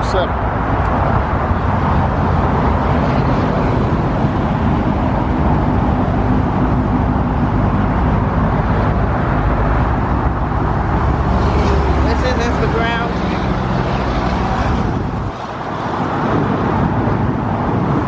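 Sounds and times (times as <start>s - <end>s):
car engine idling: 1.2s - 14.2s.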